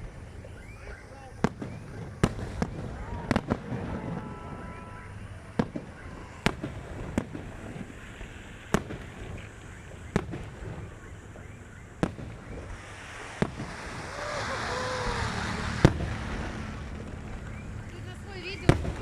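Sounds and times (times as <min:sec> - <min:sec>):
fireworks bangs: 0:00.0 - 0:19.0
low rumble: 0:13.6 - 0:19.0.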